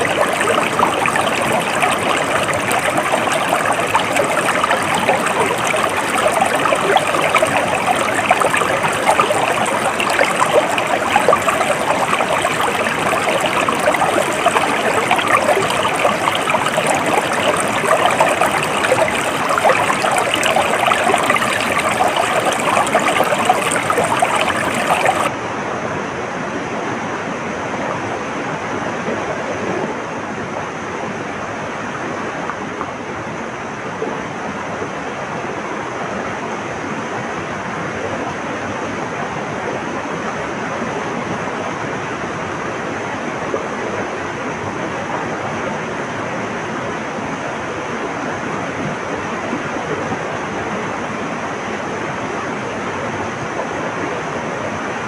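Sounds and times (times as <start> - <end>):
stream water splashing: 0.0 - 25.3.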